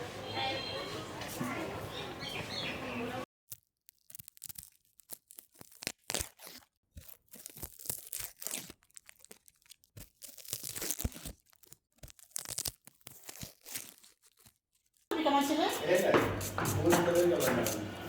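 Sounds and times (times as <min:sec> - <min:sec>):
crinkling and tearing while handled: 0:03.5 - 0:15.1.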